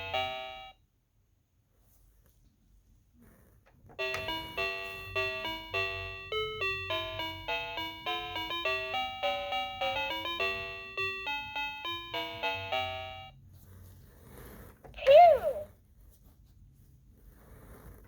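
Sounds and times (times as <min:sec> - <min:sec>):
toy electronic chime melody: 0:04.0 - 0:13.4.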